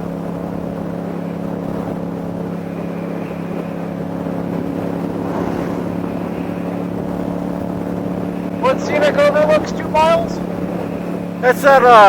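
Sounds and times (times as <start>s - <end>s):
wind over microphone: 0.0s - 8.8s
motorcycle engine cruising: 0.0s - 11.6s.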